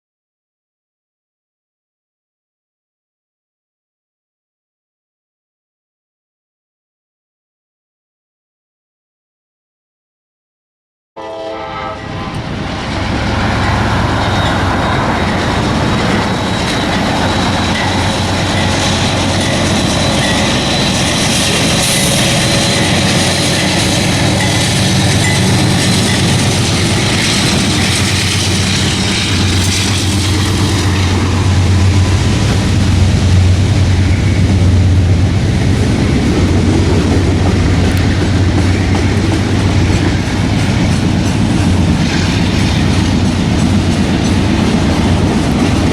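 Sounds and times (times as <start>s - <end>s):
train wheels clattering over rails: 12.3s - 45.9s.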